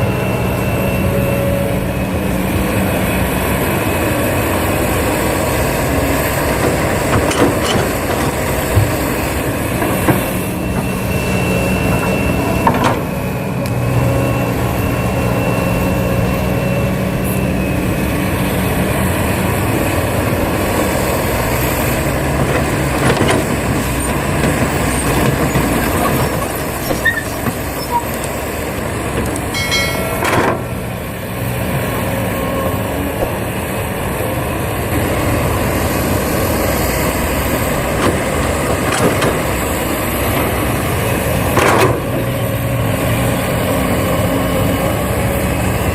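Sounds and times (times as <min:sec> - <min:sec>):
excavator running: 0:00.0 - 0:45.9
sharp knocks and clanks: 0:06.6 - 0:10.9, 0:11.9 - 0:13.0, 0:29.2 - 0:30.7.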